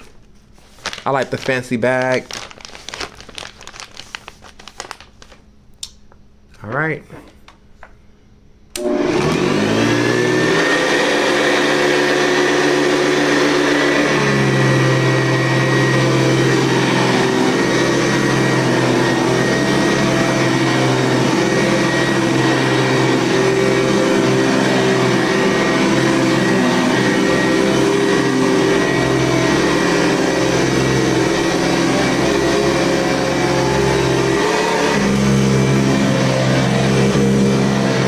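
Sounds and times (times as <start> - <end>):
vacuum cleaner motor whining: 8.7 - 38.0.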